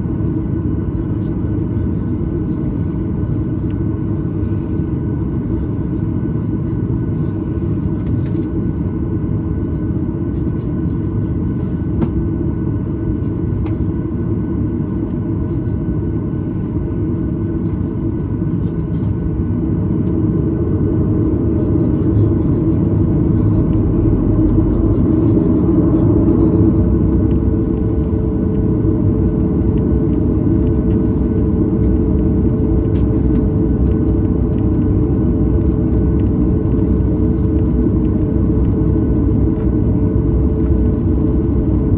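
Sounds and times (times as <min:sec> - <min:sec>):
aircraft engines rumbling: 0:00.0 - 0:41.9
steady hum: 0:10.4 - 0:41.9.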